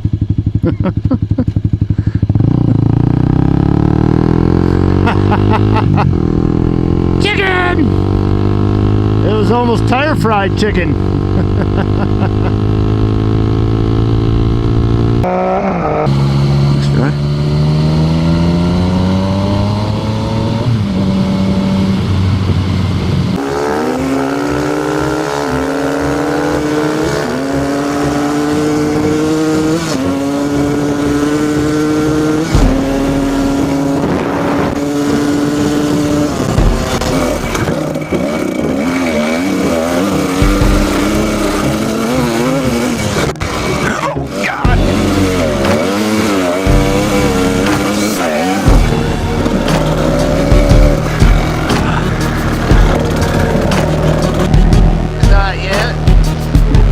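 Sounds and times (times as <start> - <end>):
motorcycle engine accelerating: 0.0 - 56.9
wind noise: 19.5 - 23.8, 30.2 - 41.0.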